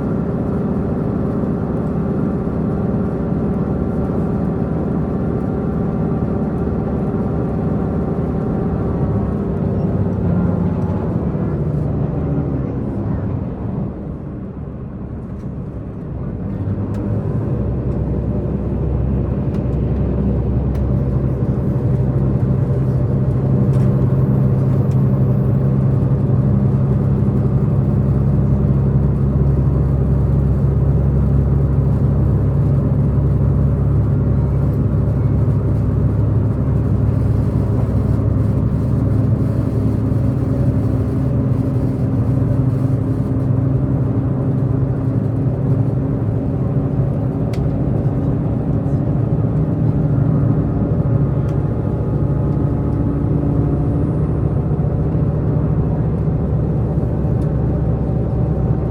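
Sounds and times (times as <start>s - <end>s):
rail rumble: 0.0s - 58.9s
train diesel engine drone: 0.0s - 58.9s.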